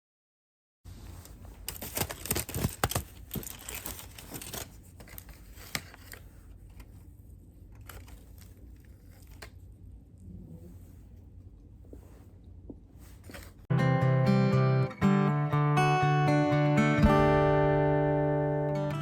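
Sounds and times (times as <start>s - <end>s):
packaging crinkling and tearing: 1.6s - 6.2s.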